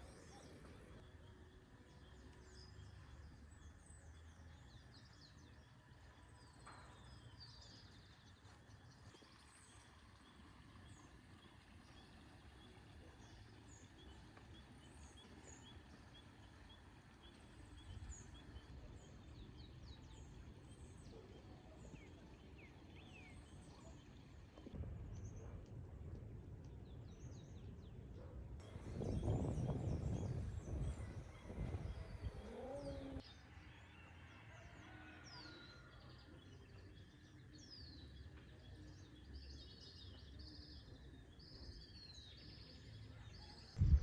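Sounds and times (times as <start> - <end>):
small birds chirping: 0.0 - 25.5
low outdoor rumble: 43.8 - 44.0.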